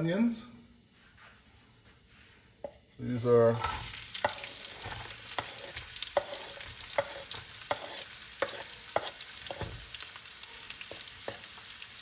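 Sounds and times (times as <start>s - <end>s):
onions sizzling in a pan: 3.2s - 12.0s.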